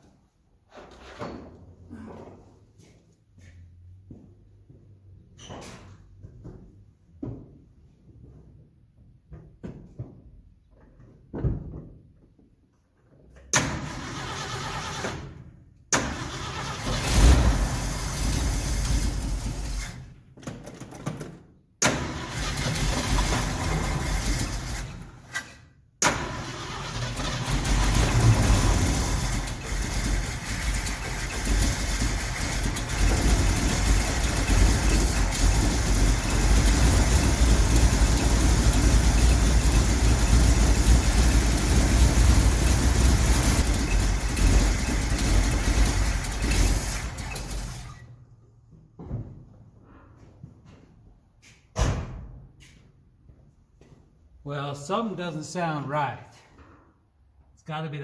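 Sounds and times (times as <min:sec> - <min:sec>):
engine cranking and starting: 0:13.5 - 0:20.1, 0:21.8 - 0:48.2
engine running steadily: 0:27.5 - 0:47.4
person speaking: 0:54.5 - 0:56.4.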